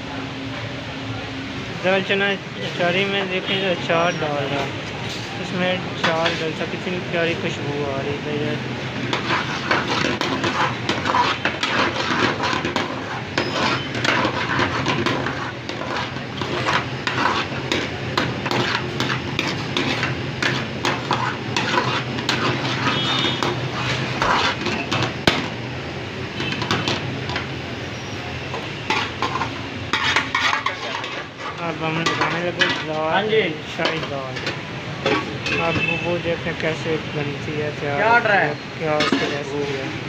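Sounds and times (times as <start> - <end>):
metal spatula scraping a pan: 8.9 - 25.6, 26.3 - 36.2, 38.8 - 39.8.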